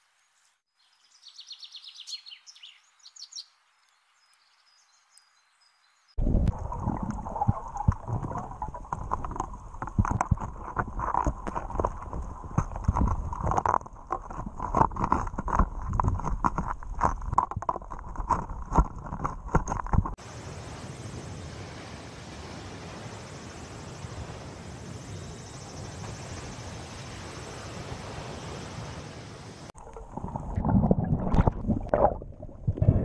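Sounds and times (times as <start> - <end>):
faint high hiss: 20.2 - 29.7.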